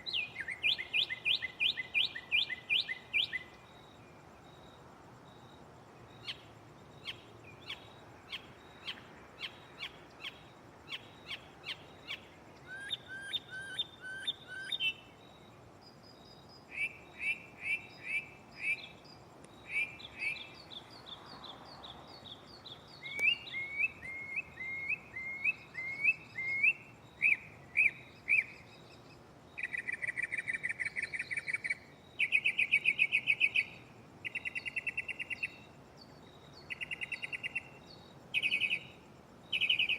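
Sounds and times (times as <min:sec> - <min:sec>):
mockingbird singing: 0:21.8 - 0:29.0, 0:29.6 - 0:35.6, 0:38.4 - 0:38.9, 0:39.5 - 0:39.9.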